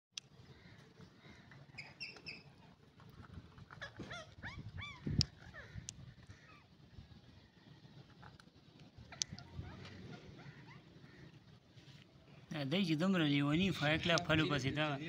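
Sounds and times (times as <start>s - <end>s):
parrot squawking: 3.8s - 6.7s, 9.1s - 11.4s.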